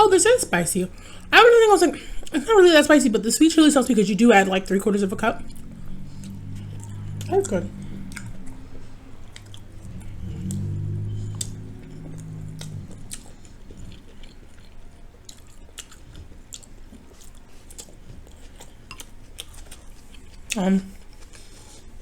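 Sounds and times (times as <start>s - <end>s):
closed-mouth humming: 0.0s - 15.9s
close chewing with mouth clicks: 3.0s - 22.0s.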